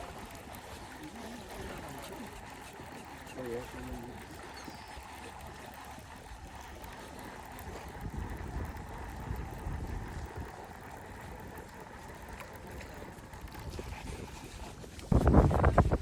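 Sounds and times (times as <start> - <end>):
wind buffeting microphone: 7.5 - 11.6, 13.3 - 16.0.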